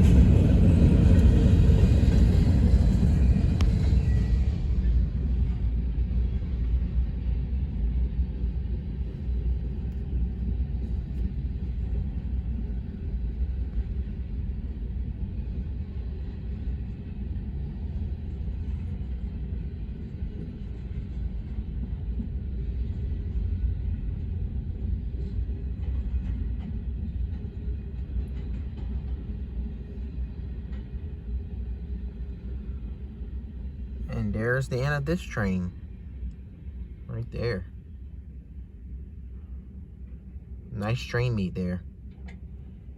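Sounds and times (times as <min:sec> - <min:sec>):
freight train wheels rumbling: 0:00.0 - 0:34.1.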